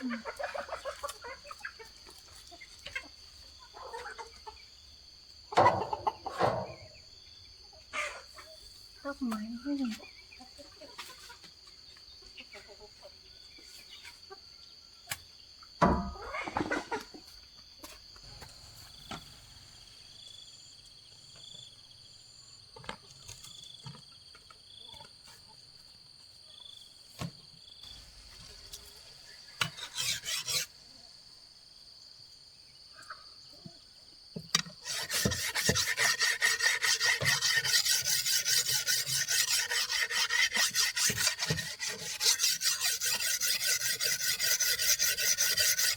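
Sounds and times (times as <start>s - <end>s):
insect drone: 15.5s - 22.7s, 27.6s - 45.9s
rasping strokes on wood: 29.6s - 30.8s, 34.6s - 45.9s.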